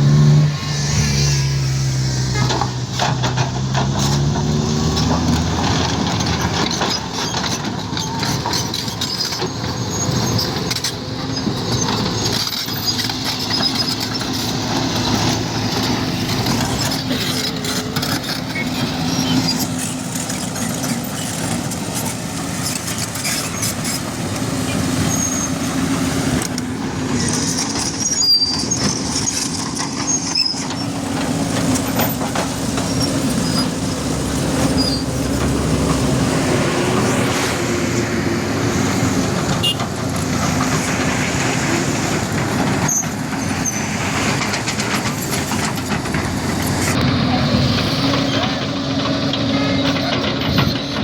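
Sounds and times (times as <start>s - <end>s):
bulldozer diesel engine running: 0.0s - 51.0s
high squeaks: 24.7s - 25.8s, 27.2s - 31.0s, 34.6s - 35.8s.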